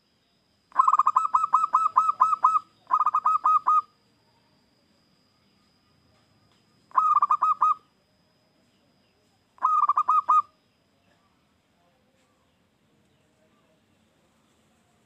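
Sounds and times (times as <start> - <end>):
dove cooing: 0.7 - 3.9, 6.9 - 7.8, 9.6 - 10.5.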